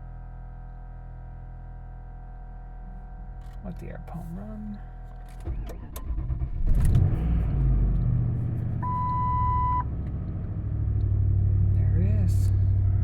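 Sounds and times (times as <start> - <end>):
car engine starting and idling: 2.5 - 13.0
electronic beep: 8.8 - 9.8.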